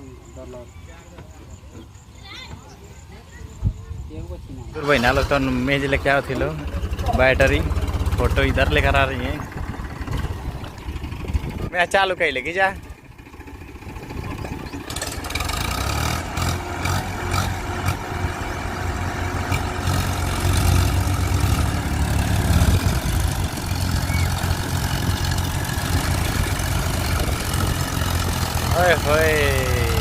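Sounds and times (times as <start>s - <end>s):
diesel tractor engine droning: 4.7s - 30.0s.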